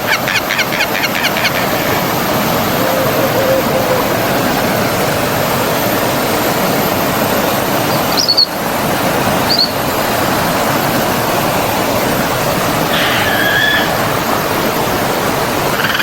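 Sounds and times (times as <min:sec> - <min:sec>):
forest stream flowing: 0:00.0 - 0:16.0
high bird chirps: 0:07.9 - 0:08.5, 0:09.5 - 0:09.8, 0:12.9 - 0:14.0.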